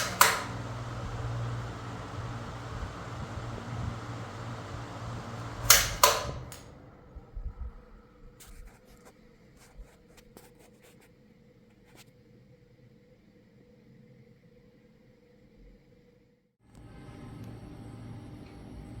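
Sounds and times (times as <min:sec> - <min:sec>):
fan switch clicks: 0:00.0 - 0:06.8
electric fan running: 0:00.0 - 0:09.0, 0:16.7 - 0:19.0.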